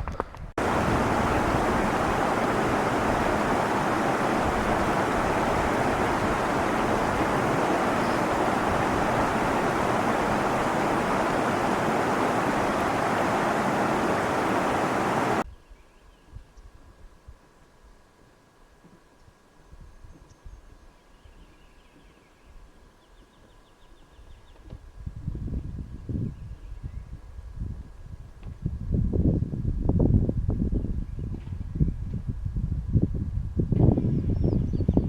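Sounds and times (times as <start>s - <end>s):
fast-moving water: 0.6s - 15.4s
strong wind rushing: 0.6s - 15.4s.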